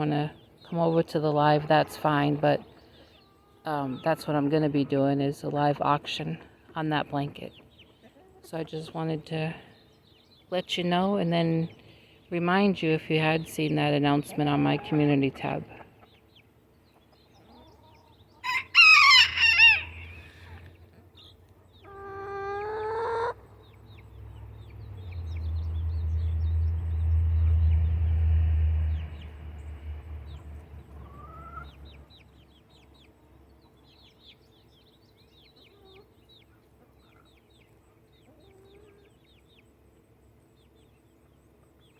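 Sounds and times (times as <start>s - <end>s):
rooster crowing: 18.4s - 20.3s
low rumble: 23.9s - 32.0s.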